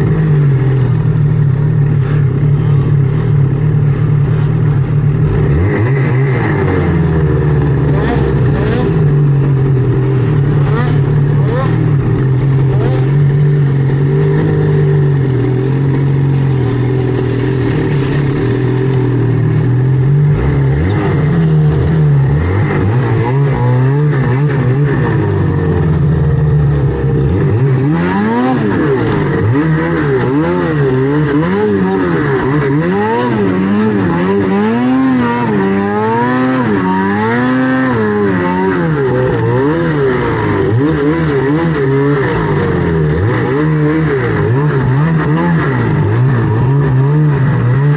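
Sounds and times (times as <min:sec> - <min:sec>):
snowmobile engine revving: 0:00.0 - 0:47.9.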